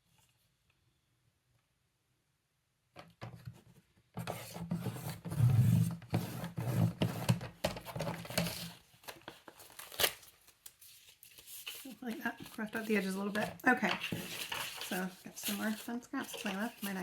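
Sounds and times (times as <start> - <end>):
paper scratching and rustling: 8.0 - 17.0.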